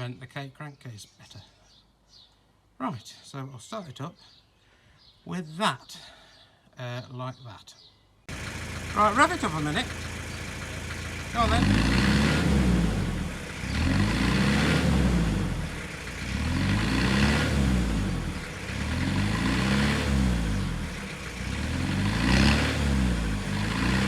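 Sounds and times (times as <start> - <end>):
car engine revving: 8.3 - 24.0.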